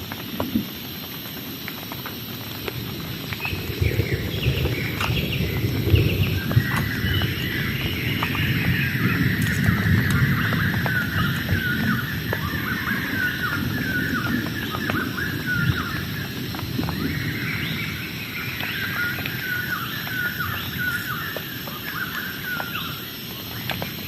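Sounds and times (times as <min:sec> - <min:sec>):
low rushing noise: 0:02.8 - 0:14.1.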